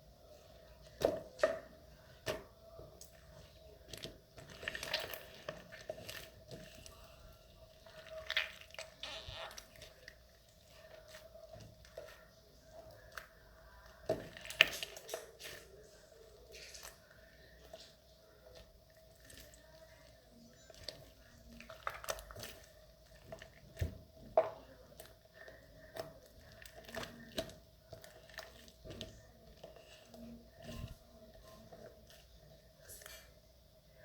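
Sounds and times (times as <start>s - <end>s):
slime crackling and squishing: 0.4s - 33.3s.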